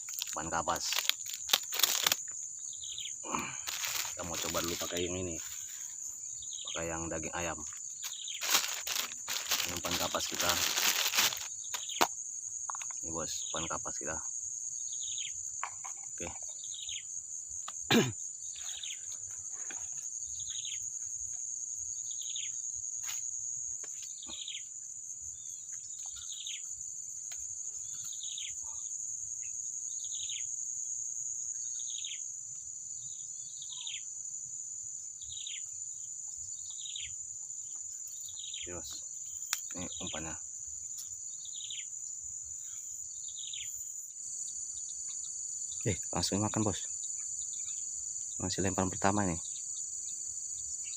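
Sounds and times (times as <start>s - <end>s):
high-pitched insect drone: 0.0s - 26.8s.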